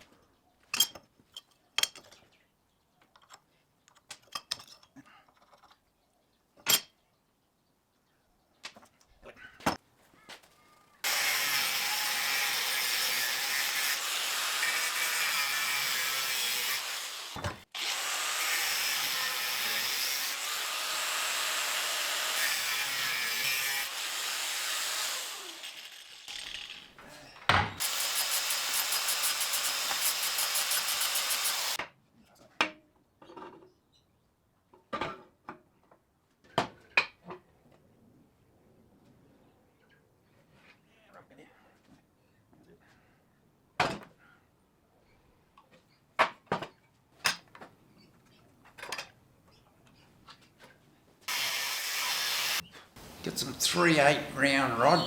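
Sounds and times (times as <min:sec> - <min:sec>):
metalworking power tool running: 0:11.1 - 0:26.9, 0:27.8 - 0:31.8, 0:51.3 - 0:52.6.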